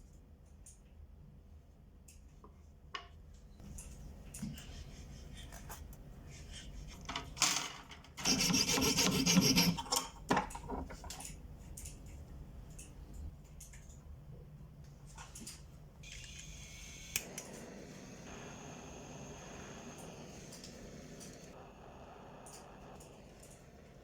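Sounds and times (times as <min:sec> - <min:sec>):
file rasping on metal: 0:08.2 - 0:10.0.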